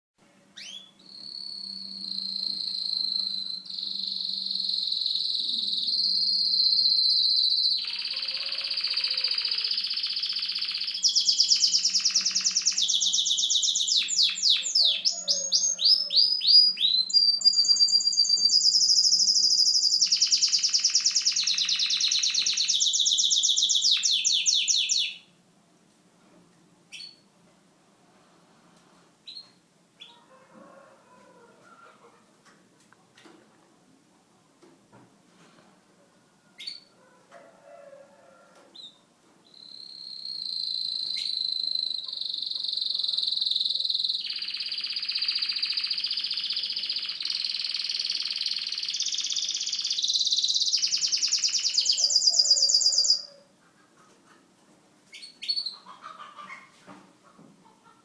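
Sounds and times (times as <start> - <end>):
short bird chirps: 0.6 - 25.2, 38.8 - 53.3
canary singing trills: 0.6 - 25.4, 36.6 - 37.0, 38.8 - 53.5, 55.1 - 56.7.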